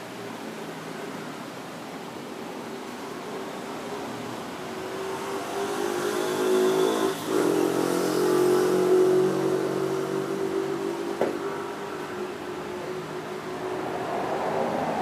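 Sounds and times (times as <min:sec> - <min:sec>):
two-stroke motorcycle engine revving: 0:04.7 - 0:11.9.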